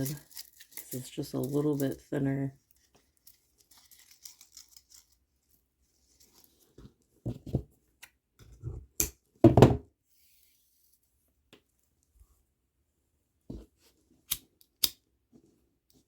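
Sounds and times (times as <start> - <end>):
scrapes and rustles of beads: 0.0 - 6.8.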